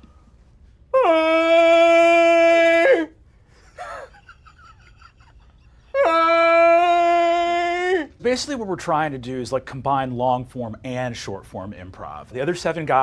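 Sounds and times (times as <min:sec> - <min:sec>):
person imitating cow moo: 0:01.0 - 0:03.1, 0:06.0 - 0:08.1.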